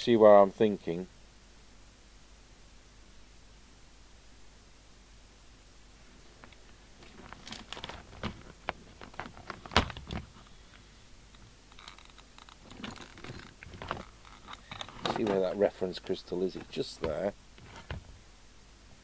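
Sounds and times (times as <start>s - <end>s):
rustling: 6.0s - 18.4s
radio parts clicking and knocking: 6.5s - 18.2s.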